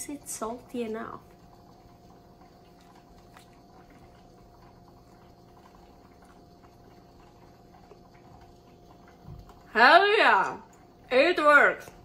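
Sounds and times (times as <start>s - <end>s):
faint steady hum: 0.0s - 12.0s
faint chewing: 2.5s - 9.7s.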